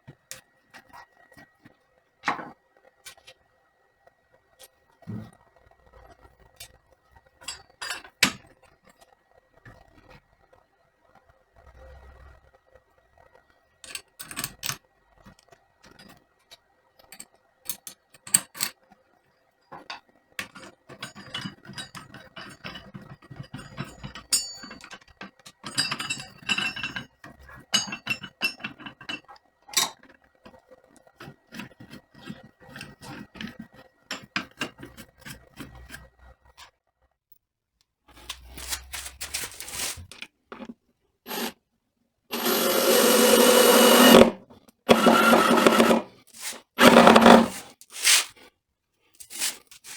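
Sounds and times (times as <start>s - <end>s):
metal tools clinking: 20.4s - 27.1s.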